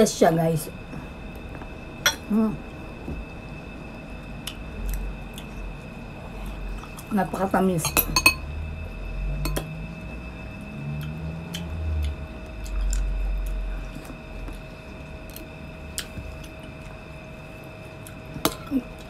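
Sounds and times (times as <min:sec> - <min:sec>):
short low hums: 0:08.4 - 0:16.5.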